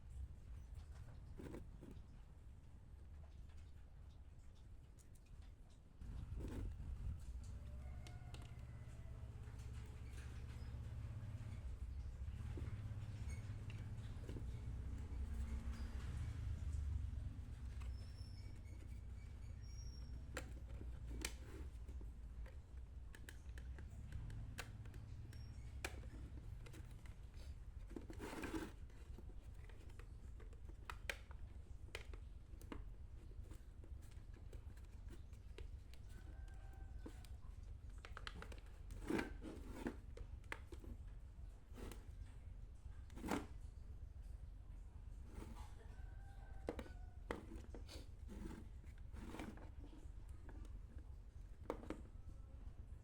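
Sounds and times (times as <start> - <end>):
light clicks and taps: 3.0 - 43.4.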